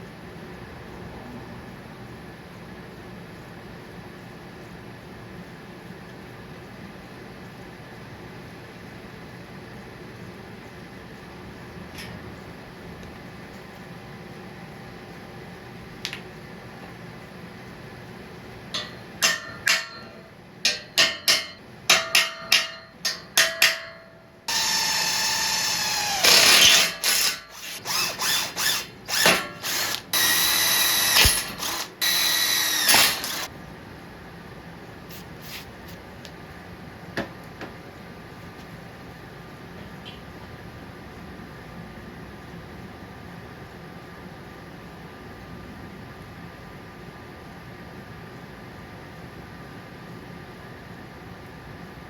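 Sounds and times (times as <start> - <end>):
power tool motor whining: 24.5 - 33.5.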